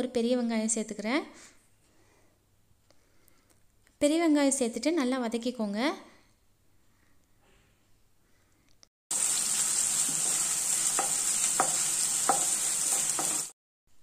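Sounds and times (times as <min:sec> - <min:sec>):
onions sizzling in hot oil: 0:09.1 - 0:13.6
wooden spatula knocking on pan: 0:10.1 - 0:13.5.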